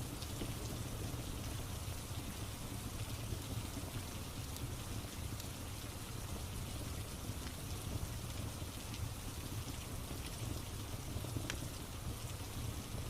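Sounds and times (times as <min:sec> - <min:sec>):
steady rain: 0:00.0 - 0:13.0
log fire crackling: 0:09.7 - 0:11.9.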